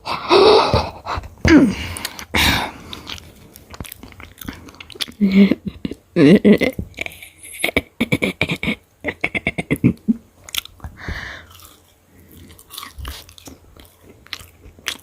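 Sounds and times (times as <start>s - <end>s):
person chewing crunchy food: 1.8s - 6.0s, 10.4s - 15.0s.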